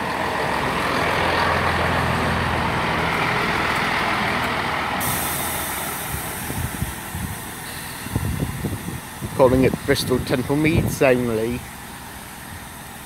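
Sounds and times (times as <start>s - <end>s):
train engine hum: 0.0s - 13.0s
steady hiss of air: 4.9s - 13.0s.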